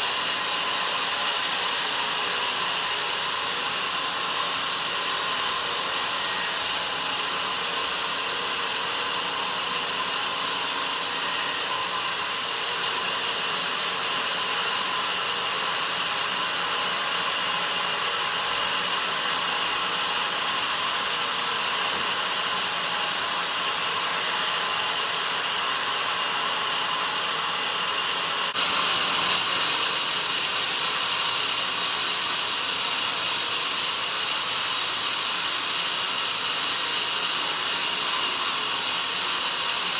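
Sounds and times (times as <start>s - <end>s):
band saw cutting log: 0.0s - 12.4s, 26.4s - 39.9s.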